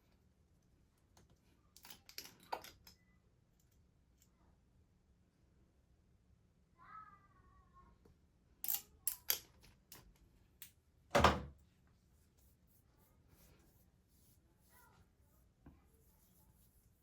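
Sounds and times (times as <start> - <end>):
small containers clicking and knocking: 1.2 - 3.0.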